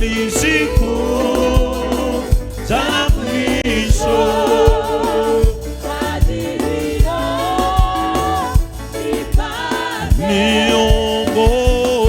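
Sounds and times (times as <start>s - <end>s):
drum beat: 0.0s - 12.0s
gospel worship music: 0.0s - 12.0s
lead singer singing: 0.0s - 12.0s.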